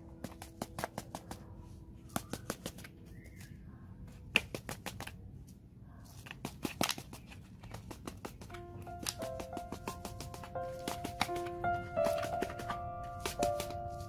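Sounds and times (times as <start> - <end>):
handling clicks and crackles: 6.1 - 14.0.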